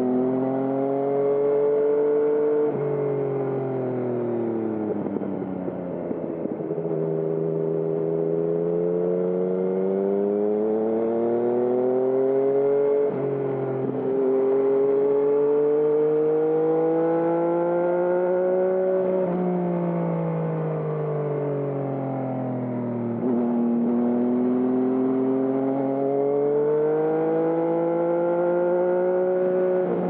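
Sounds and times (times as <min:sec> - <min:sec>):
motorcycle engine revving: 0:00.1 - 0:02.9, 0:06.0 - 0:19.7, 0:23.2 - 0:30.0.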